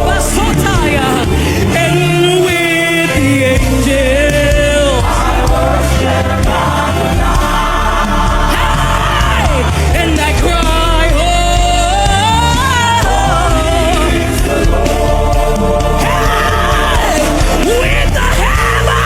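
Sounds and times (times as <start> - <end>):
band playing worship music: 0.0 - 19.0
crowd singing along: 0.0 - 19.0
people shouting: 16.0 - 19.0.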